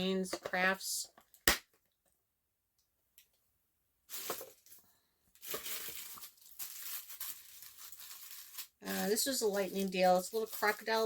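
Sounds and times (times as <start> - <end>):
plastic packaging crinkling: 4.1 - 11.0.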